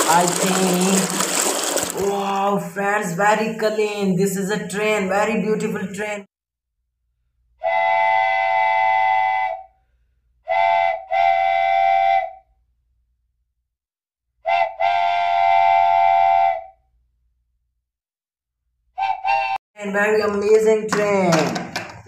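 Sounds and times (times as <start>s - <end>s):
train whistle blasts: 7.6s - 9.8s, 10.4s - 12.4s, 14.4s - 16.8s, 19.0s - 19.6s.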